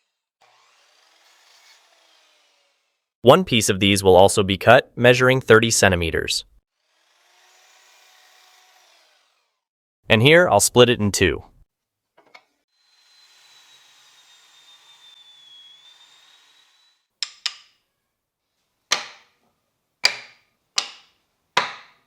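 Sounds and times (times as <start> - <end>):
sharp knocks: 20.0 - 22.0.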